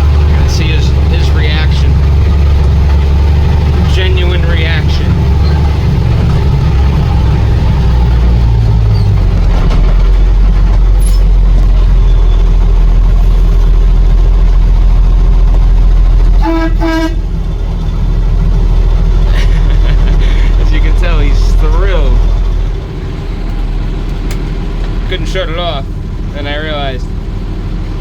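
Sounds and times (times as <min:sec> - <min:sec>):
diesel truck engine drone: 0:00.0 - 0:28.0
horn toots: 0:16.3 - 0:17.4.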